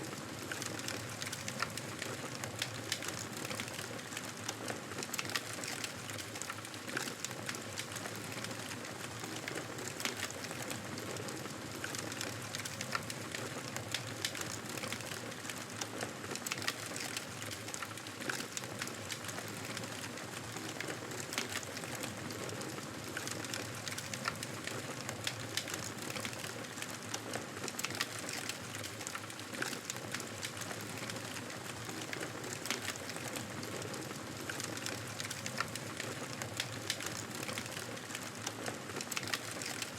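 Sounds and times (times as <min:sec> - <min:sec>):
campfire crackling: 0:16.6 - 0:39.9.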